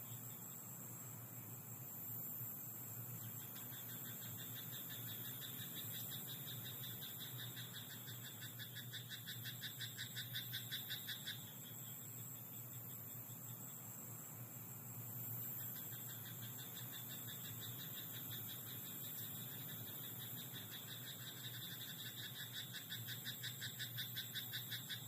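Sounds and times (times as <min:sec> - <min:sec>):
high-pitched background hiss: 0:00.0 - 0:25.0
frog croaking: 0:03.6 - 0:11.6, 0:15.6 - 0:25.0.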